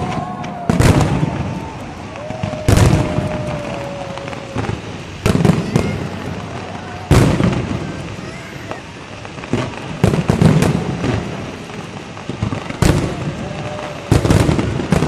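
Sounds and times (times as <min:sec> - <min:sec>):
firework shells bursting: 0:00.0 - 0:15.0
fireworks crackling: 0:00.0 - 0:15.0.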